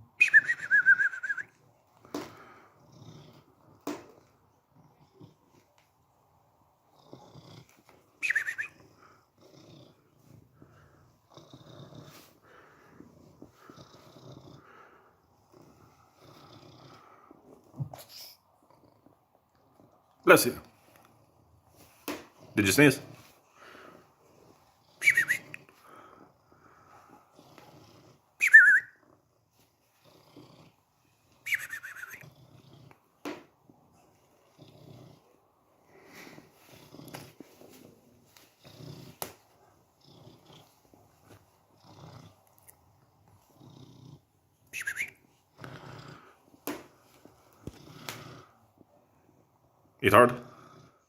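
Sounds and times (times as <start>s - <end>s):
cat whistling nasal breathing: 0.2s - 1.6s, 8.2s - 9.0s, 25.0s - 25.7s, 28.4s - 29.0s, 31.4s - 32.3s, 44.7s - 45.2s
cat purring: 0.8s - 51.0s.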